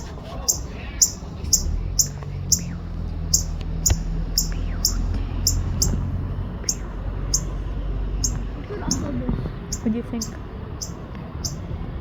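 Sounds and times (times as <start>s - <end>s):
bird giving sharp chip notes: 0.0s - 7.6s
low rumble: 0.0s - 10.7s.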